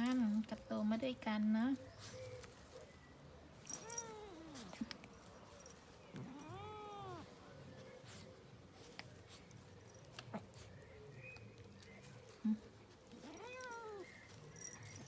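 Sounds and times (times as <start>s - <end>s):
cat meowing: 13.2s - 14.1s.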